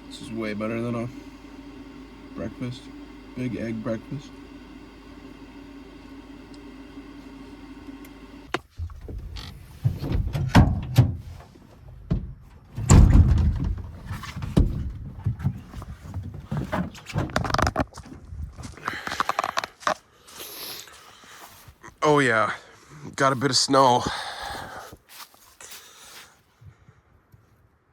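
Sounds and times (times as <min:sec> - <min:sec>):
truck engine hum: 0:00.0 - 0:10.4
heavy thumps and knocks: 0:12.0 - 0:17.8.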